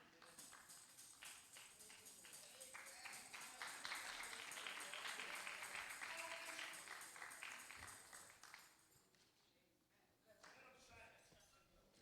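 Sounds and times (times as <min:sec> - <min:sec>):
congregation applauding: 0:00.0 - 0:08.9.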